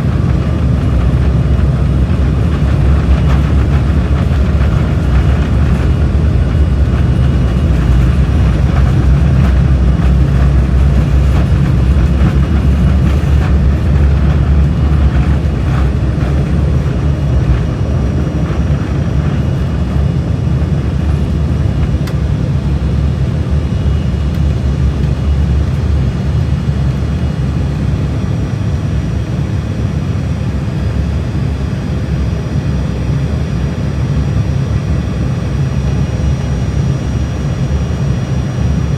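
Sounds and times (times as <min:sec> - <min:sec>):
runway rumble: 0:00.0 - 0:27.2
aircraft engine noise: 0:00.0 - 0:38.9.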